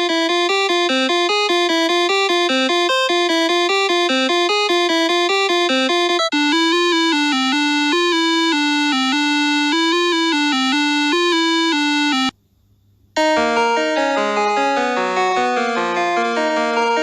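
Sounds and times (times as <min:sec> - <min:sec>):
electronic synth music: 0:00.0 - 0:12.3.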